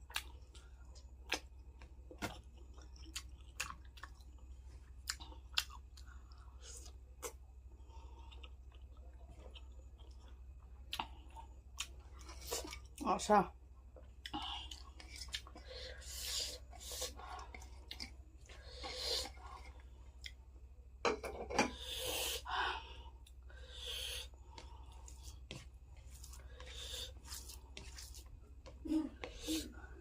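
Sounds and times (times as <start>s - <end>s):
person chewing: 0.0s - 13.0s, 14.0s - 20.5s, 23.2s - 30.0s
steady low hum: 0.1s - 30.0s.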